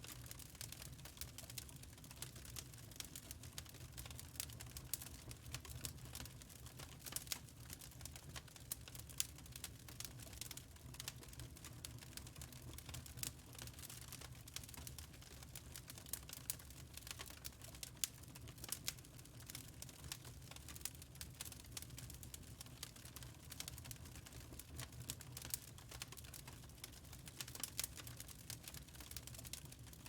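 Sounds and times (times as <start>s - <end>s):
wood fire crackling: 0.1s - 30.0s.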